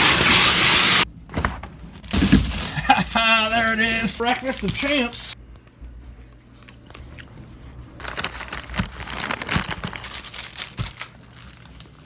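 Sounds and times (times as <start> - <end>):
plastic packaging crinkling: 2.0 - 5.4, 7.9 - 12.0.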